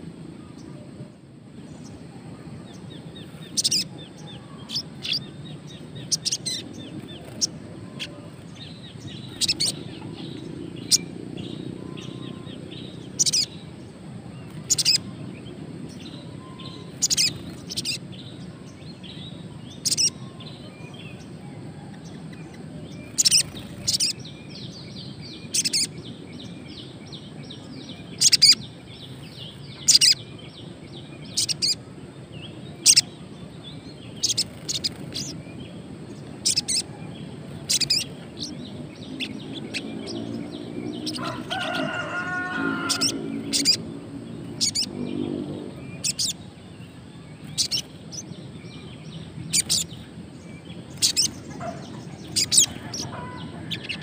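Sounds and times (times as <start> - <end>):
bird twittering softly: 1.8 - 13.7, 14.4 - 15.2, 15.9 - 31.9, 32.5 - 43.8, 44.4 - 54.0
bird chirping sharply: 37.6 - 43.8, 44.5 - 46.5, 50.8 - 54.0
rooster crowing: 41.0 - 43.8, 52.1 - 54.0.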